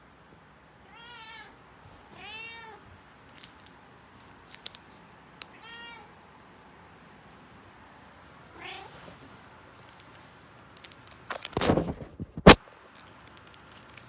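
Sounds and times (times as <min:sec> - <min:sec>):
cat meowing: 0:00.8 - 0:02.9, 0:05.4 - 0:06.2, 0:08.5 - 0:09.1.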